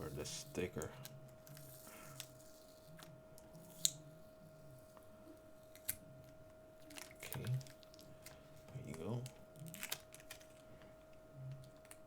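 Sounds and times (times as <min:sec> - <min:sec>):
package rustling: 0:06.8 - 0:10.6.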